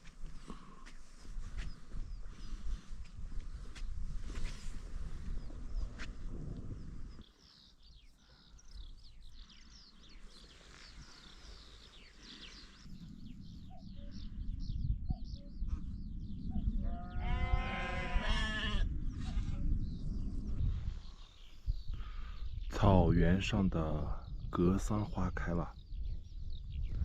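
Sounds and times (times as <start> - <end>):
wind rumble on microphone: 0.0 - 7.3, 8.8 - 27.0
small birds chirping: 0.0 - 27.0
sheep bleating: 17.0 - 18.9.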